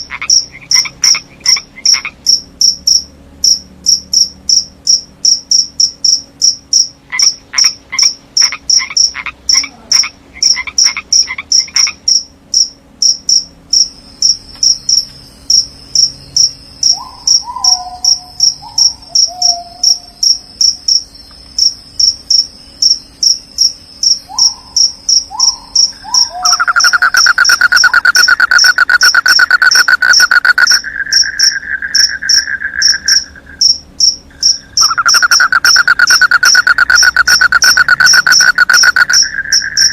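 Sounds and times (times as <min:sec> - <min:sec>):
cricket chirping: 0:00.0 - 0:39.9
frogs croaking: 0:00.0 - 0:39.9
loud rapid trill: 0:26.4 - 0:39.9.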